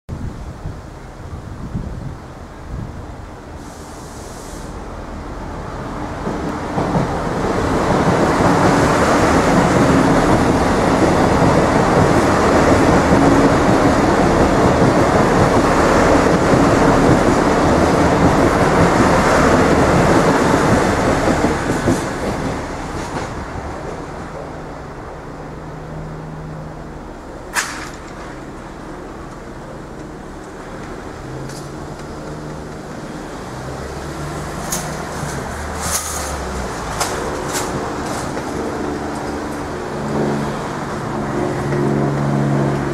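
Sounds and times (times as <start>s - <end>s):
diesel train passing: 0.2s - 42.9s.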